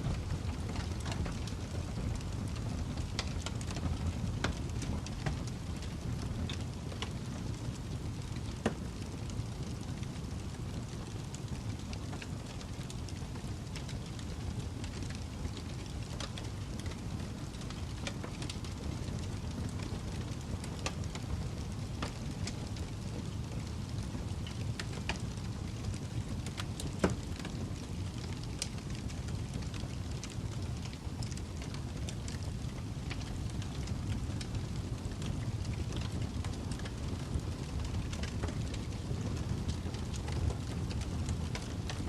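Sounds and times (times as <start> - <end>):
fire crackles and pops: 0.0 - 42.0
wood fire rumbling: 0.0 - 42.0.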